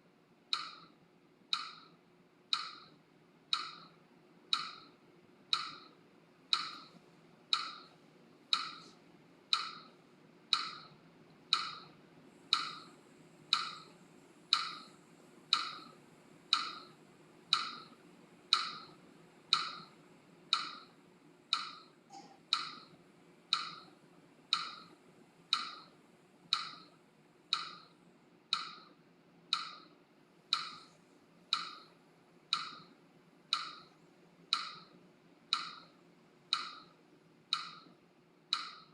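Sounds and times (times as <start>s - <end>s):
metronome ticking: 0.5s - 0.9s, 1.5s - 7.9s, 8.5s - 8.9s, 9.5s - 9.9s, 10.5s - 12.9s, 13.5s - 13.9s, 14.5s - 14.9s, 15.5s - 15.9s, 16.5s - 19.9s, 20.5s - 20.9s, 21.5s - 23.9s, 24.5s - 25.9s, 26.5s - 26.9s, 27.5s - 27.9s, 28.5s - 28.9s, 29.5s - 30.9s, 31.5s - 31.9s, 32.5s - 32.9s, 33.5s - 34.9s, 35.5s - 35.9s, 36.5s - 36.9s, 37.5s - 37.9s, 38.5s - 38.9s.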